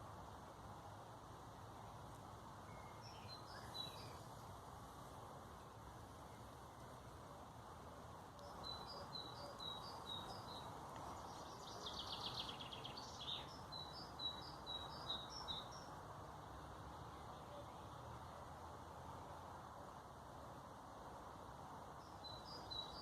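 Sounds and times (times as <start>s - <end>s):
low background noise: 0.0s - 23.0s
songbird chirping and trilling: 2.6s - 4.4s, 8.4s - 16.0s, 22.0s - 23.0s.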